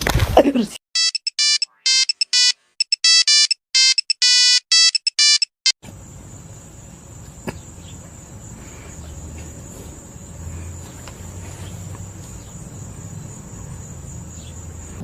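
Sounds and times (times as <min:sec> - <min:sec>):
electronic beeping ringtone melody: 0:01.0 - 0:05.5.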